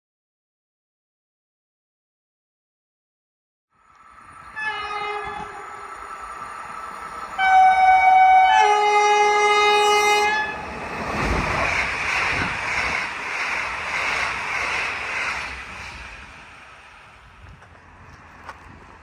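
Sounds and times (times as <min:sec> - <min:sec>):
wheels rushing on rail: 0:03.8 - 0:19.0
train horn two notes: 0:04.6 - 0:05.8, 0:07.4 - 0:10.6.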